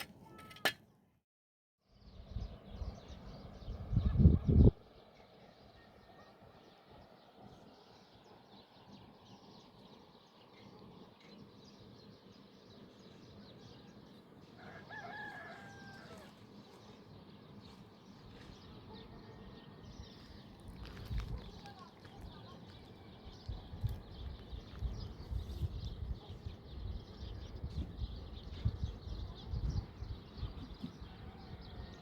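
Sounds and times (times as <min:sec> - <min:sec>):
rooster crowing: 0:14.6 - 0:16.4, 0:31.0 - 0:32.0.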